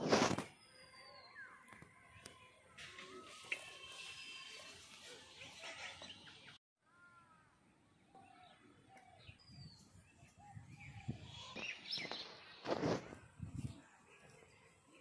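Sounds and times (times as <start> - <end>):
bird chirps and calls: 8.2 - 12.7.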